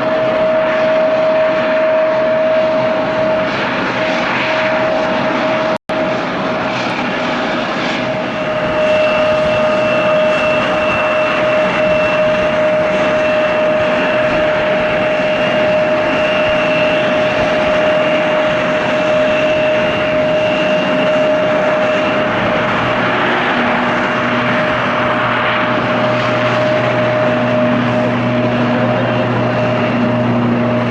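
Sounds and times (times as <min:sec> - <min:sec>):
propeller noise: 0:00.0 - 0:30.9
turboprop engines whining: 0:00.0 - 0:30.9.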